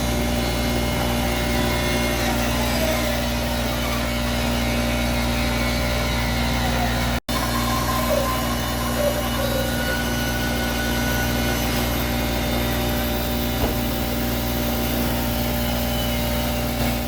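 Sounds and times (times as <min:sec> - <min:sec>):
electric bandsaw running: 0:00.0 - 0:17.0.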